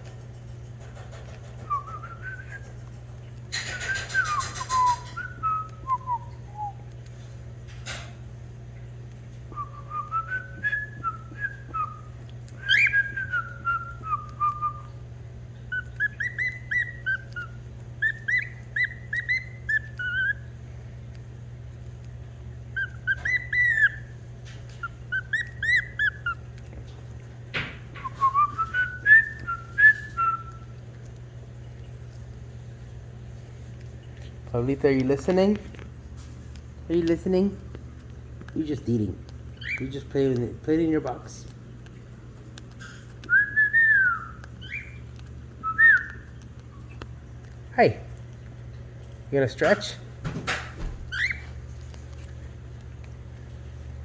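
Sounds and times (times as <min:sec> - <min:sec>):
cockatiel whistling a song: 0:01.0 - 0:02.8, 0:03.5 - 0:07.0, 0:09.5 - 0:15.0, 0:15.6 - 0:20.5, 0:22.7 - 0:26.4, 0:27.5 - 0:30.7, 0:39.6 - 0:40.1, 0:42.8 - 0:46.9, 0:50.8 - 0:51.6.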